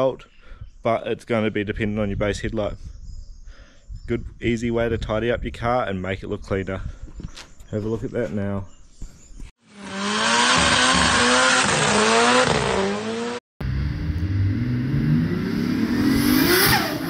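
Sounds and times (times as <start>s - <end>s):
car engine revving: 9.7s - 17.0s.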